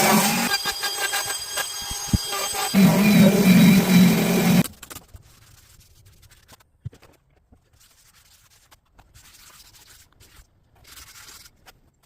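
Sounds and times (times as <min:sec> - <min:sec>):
faint rubbing and scratching: 0:05.0 - 0:12.0.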